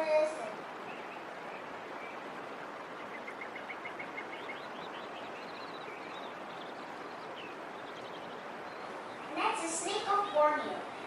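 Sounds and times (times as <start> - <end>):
birds chirping: 0.0 - 11.0
rainforest hiss: 0.0 - 11.0.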